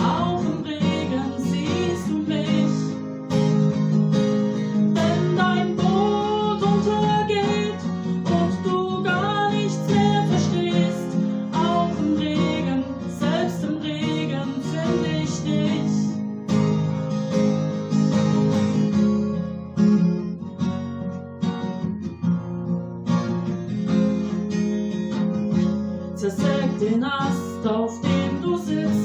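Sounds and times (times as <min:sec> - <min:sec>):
person singing: 0:00.0 - 0:03.1, 0:04.9 - 0:16.2, 0:26.2 - 0:29.0
acoustic guitar strumming: 0:00.0 - 0:29.0.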